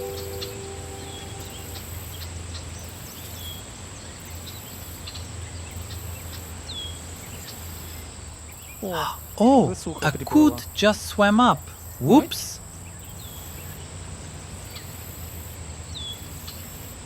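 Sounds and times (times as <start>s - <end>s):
bird chirps: 0.0s - 1.9s
guitar music: 0.0s - 1.9s.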